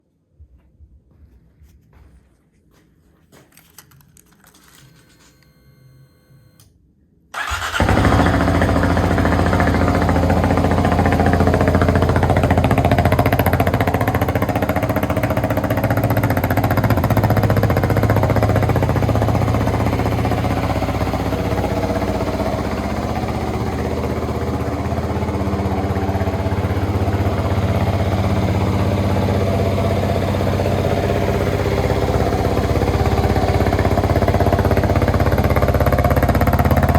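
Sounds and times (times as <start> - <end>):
motorcycle engine starting and idling: 7.4 - 36.9.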